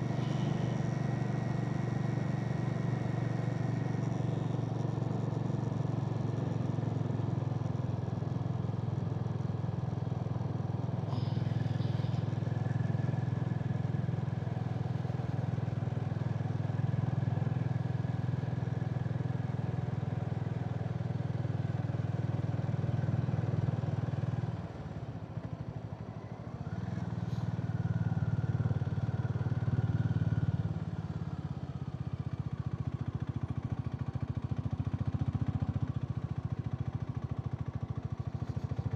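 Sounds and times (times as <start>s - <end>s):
motorcycle engine running: 26.7s - 38.9s.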